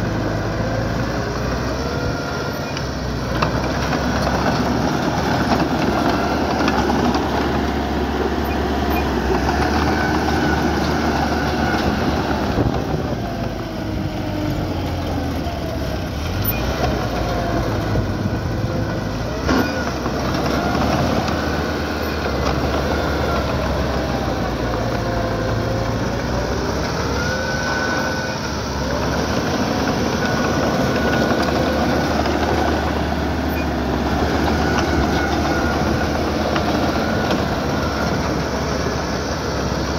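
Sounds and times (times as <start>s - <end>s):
bulldozer diesel engine running: 0.0s - 39.9s
steel tracks squealing and clanking: 8.3s - 14.6s, 15.5s - 24.5s, 26.3s - 38.7s.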